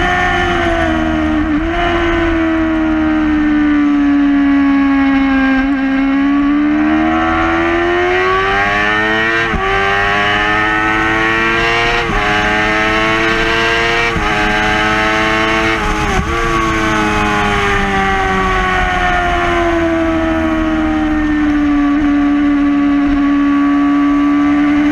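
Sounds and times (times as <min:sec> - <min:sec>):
motorcycle engine at high revs: 0:00.0 - 0:24.9
wind rush: 0:11.2 - 0:23.6.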